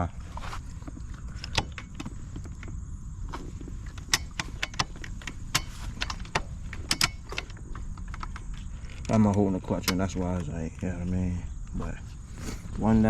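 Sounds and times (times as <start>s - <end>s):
steady low rumble: 0.0s - 13.0s
gear shifter clicks and clunks: 0.9s - 10.5s.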